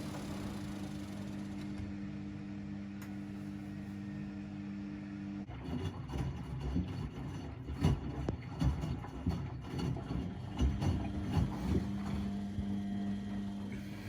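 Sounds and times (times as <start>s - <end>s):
laundry machine motor hum: 0.0s - 6.8s, 7.5s - 14.0s.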